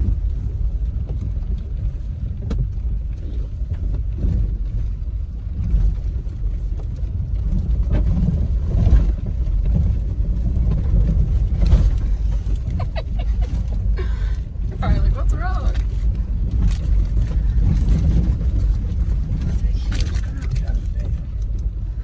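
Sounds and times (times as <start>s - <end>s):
vehicle rumbling on rough trail: 0.0s - 22.0s.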